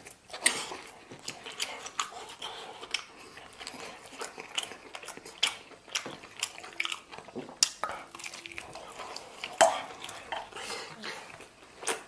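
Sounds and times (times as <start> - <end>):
wet chewing and lip smacks: 0.0 - 12.0.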